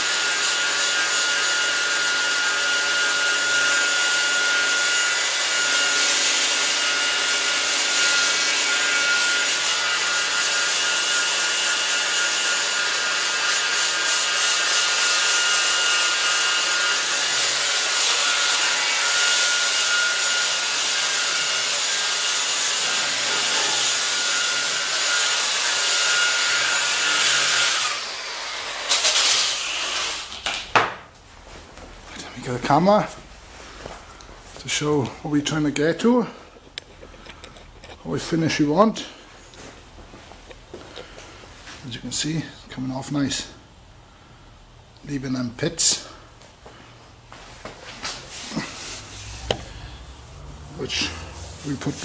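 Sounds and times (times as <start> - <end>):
power sander grinding metal: 0.0 - 30.4, 48.3 - 52.0.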